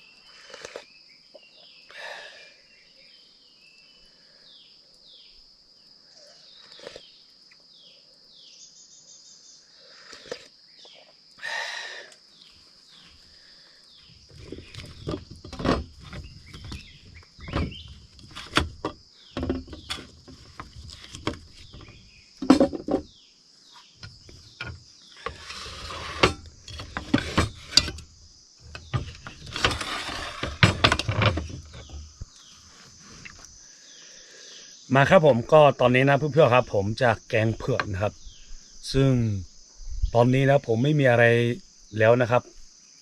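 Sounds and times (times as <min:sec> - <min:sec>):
crickets trilling: 0:00.0 - 0:43.0
scraping: 0:14.2 - 0:23.0, 0:24.0 - 0:33.5
objects knocking and clattering: 0:14.3 - 0:23.1, 0:24.0 - 0:32.4.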